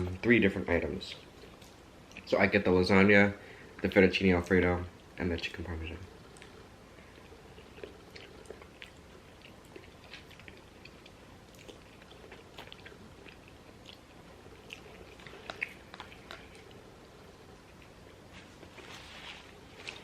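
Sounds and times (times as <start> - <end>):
wet chewing mouth clicks: 7.3 - 16.8.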